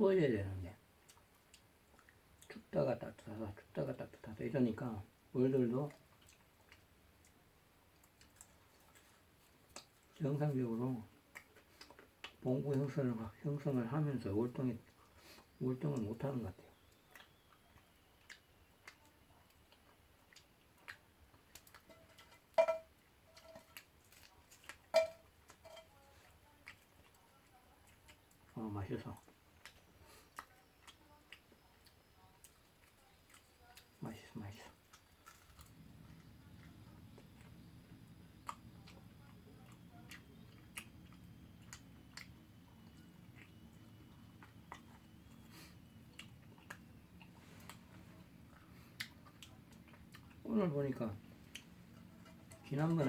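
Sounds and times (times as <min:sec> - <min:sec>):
faint low hum: 0:00.0 - 0:53.0
firewood crackling and popping: 0:20.9 - 0:25.9
firewood crackling: 0:40.2 - 0:53.0.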